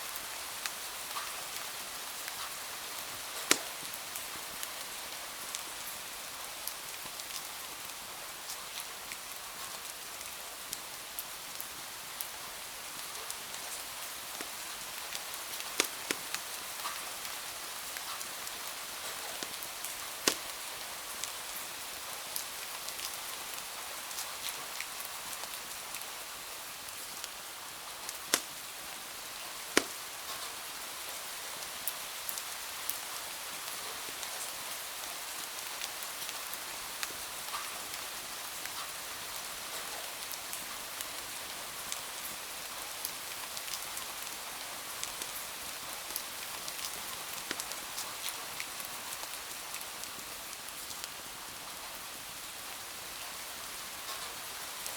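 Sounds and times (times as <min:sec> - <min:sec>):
rain hiss: 0:00.0 - 0:54.9
wood fire crackling and popping: 0:03.3 - 0:04.0, 0:14.3 - 0:17.0, 0:18.0 - 0:20.7, 0:28.0 - 0:30.5, 0:46.8 - 0:48.1.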